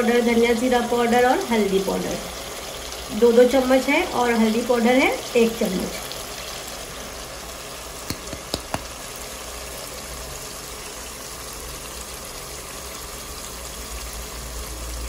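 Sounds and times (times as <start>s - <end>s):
food sizzling in a pot: 0.0s - 15.0s
quick light taps: 8.1s - 8.9s.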